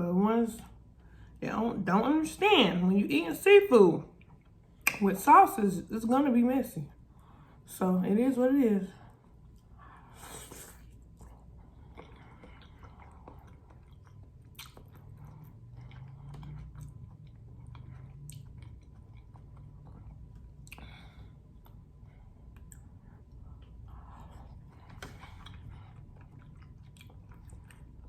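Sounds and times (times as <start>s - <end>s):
person chewing wet mouth sounds: 9.5s - 28.0s.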